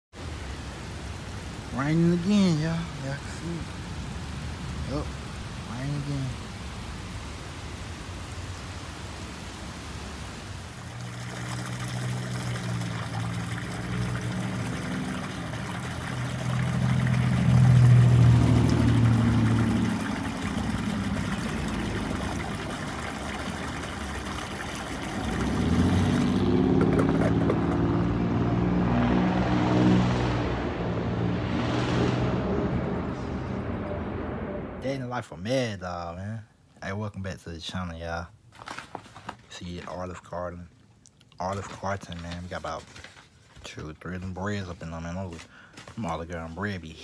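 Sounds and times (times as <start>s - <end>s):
steady rain: 0.2s - 28.4s
vehicle engine hum: 10.3s - 35.0s.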